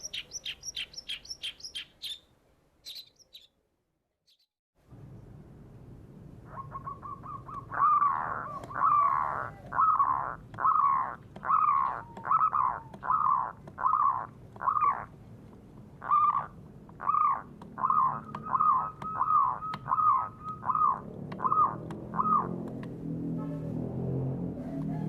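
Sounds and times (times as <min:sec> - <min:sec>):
bird calling harshly: 0:06.5 - 0:15.1, 0:16.0 - 0:22.6.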